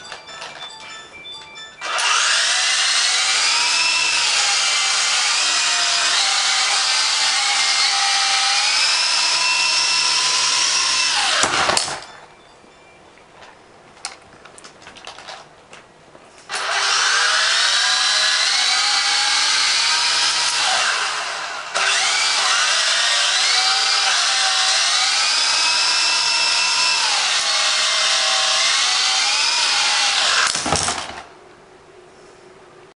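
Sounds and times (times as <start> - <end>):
toy helicopter rotors whining: 1.8 - 11.5.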